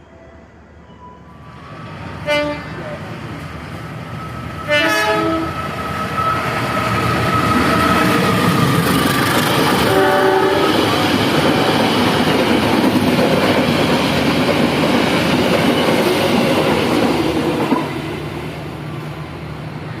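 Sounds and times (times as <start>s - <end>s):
train cars rumbling on rails: 1.4s - 20.0s
train horn: 2.2s - 2.8s, 4.7s - 5.6s, 9.8s - 10.9s.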